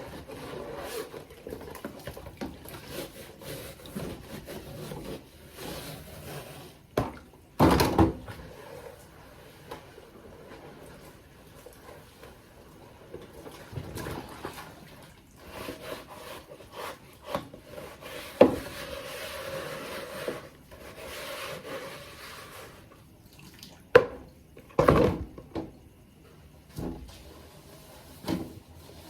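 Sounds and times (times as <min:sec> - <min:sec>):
scraping and rubbing: 0:00.0 - 0:01.7, 0:02.6 - 0:06.8, 0:15.4 - 0:22.9.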